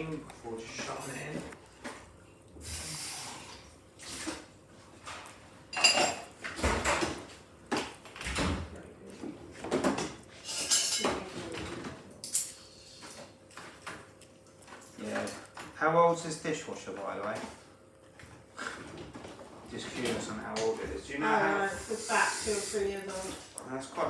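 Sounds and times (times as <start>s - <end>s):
dishes and cutlery clattering: 5.7s - 7.2s, 9.7s - 13.9s.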